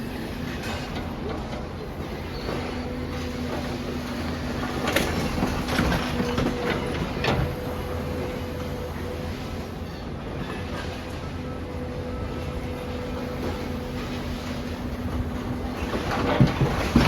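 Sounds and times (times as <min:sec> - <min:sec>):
excavator engine drone: 0:00.0 - 0:17.0.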